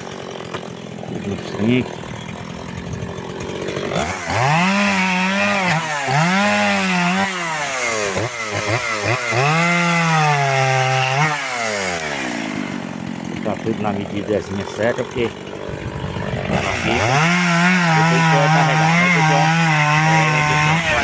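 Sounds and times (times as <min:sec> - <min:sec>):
chainsaw cutting logs: 0:00.0 - 0:21.0.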